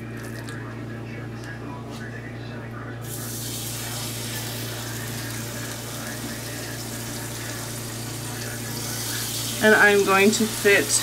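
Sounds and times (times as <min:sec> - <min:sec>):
chicken sizzling in hot oil: 0:03.0 - 0:11.0.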